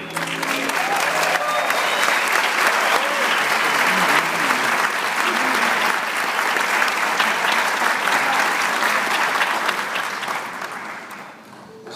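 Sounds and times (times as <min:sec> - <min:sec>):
audience applauding: 0:00.0 - 0:11.7
crowd shouts: 0:00.6 - 0:06.0.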